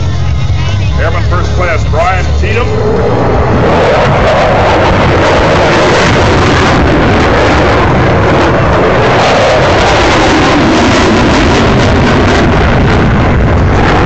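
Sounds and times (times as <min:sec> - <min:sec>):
jet aircraft flying past: 0:00.0 - 0:14.0.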